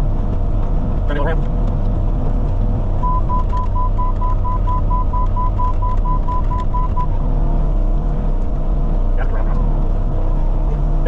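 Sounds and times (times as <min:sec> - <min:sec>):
diesel engine running: 0:00.0 - 0:11.0
rapid electronic warning beeps: 0:03.0 - 0:07.1.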